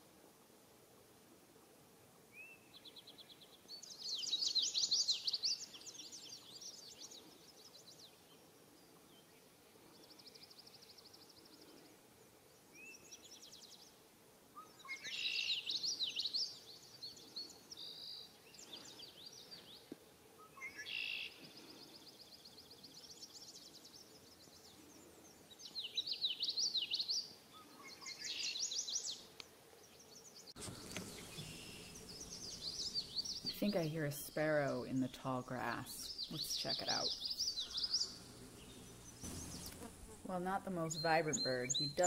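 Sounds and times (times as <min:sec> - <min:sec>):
songbird trilling: 0:30.6 - 0:42.0.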